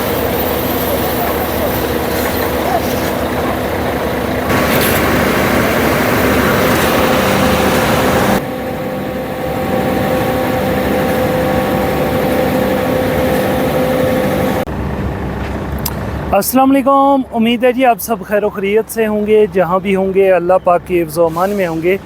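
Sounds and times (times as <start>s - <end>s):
steady whine: 0.0s - 16.6s
heavy diesel engines running: 0.0s - 22.0s.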